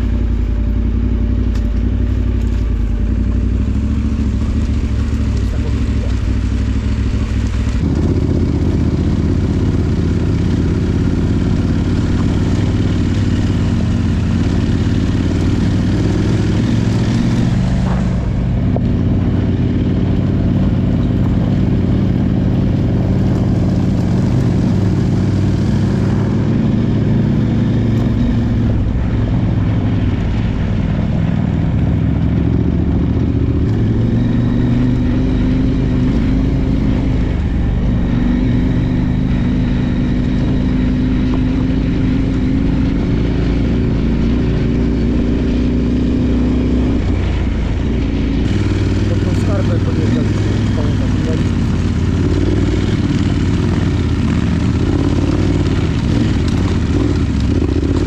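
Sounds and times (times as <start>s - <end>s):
motorcycle engine revving: 0.0s - 58.0s
rush of noise: 2.9s - 20.8s.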